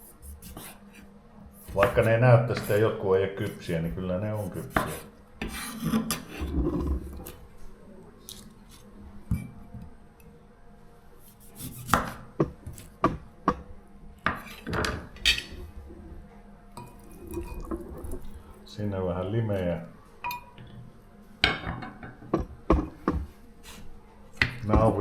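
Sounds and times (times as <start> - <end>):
kitchen utensils knocking and scraping: 14.3 - 15.6.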